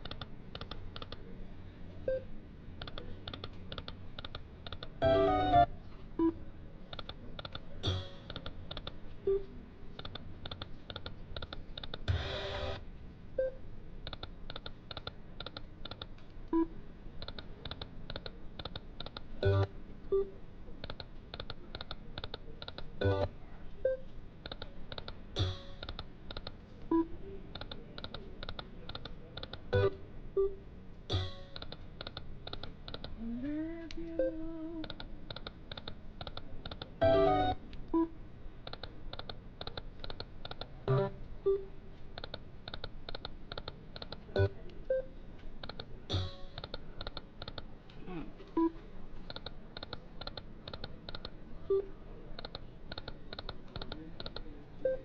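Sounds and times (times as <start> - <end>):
slot machine chime: 5.0 - 5.7.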